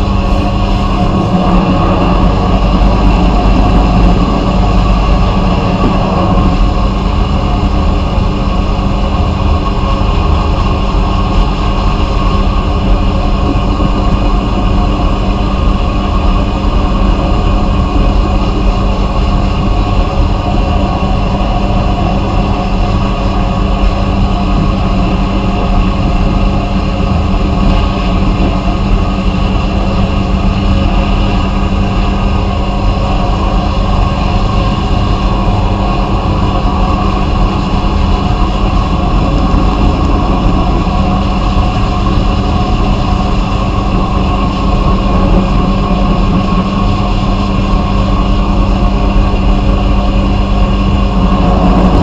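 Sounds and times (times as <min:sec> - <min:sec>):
abrasive blasting noise: 0:00.0 - 0:13.8
low machine drone: 0:00.0 - 0:52.0.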